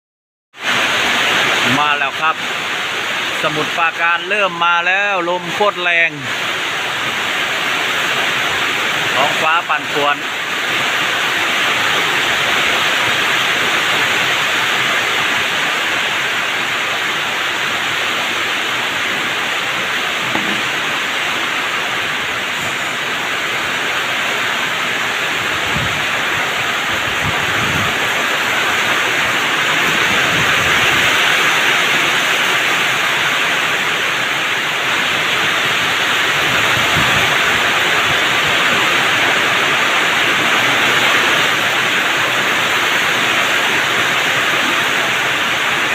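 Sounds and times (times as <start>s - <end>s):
heavy rain pouring: 0.6s - 45.9s
wind gusts rumbling: 18.8s - 33.1s, 35.5s - 43.6s.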